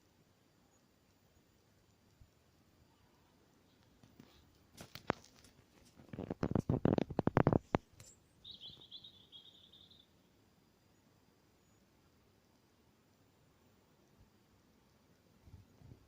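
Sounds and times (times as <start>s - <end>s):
sharp clicks and knocks: 3.9s - 8.1s
bird's buzzy high trill: 8.1s - 10.1s.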